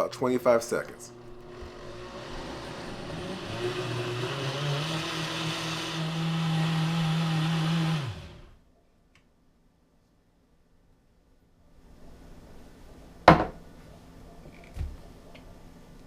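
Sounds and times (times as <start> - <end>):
blender motor blending liquid: 0.5 - 8.6.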